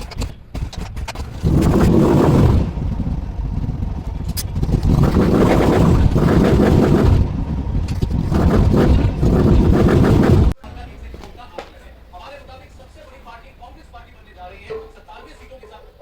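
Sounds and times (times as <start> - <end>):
motorcycle engine revving: 0.6 - 10.6.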